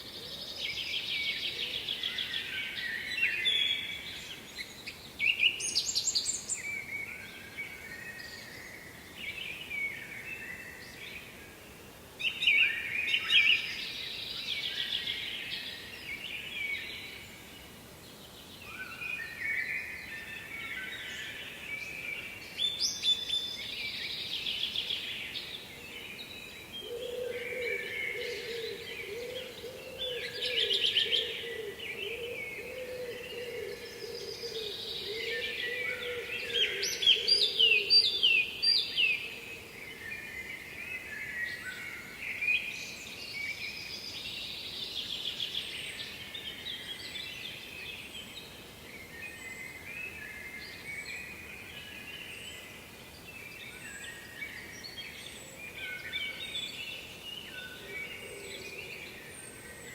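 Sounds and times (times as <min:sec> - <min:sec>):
songbirds trilling and warbling: 0:00.0 - 0:59.9.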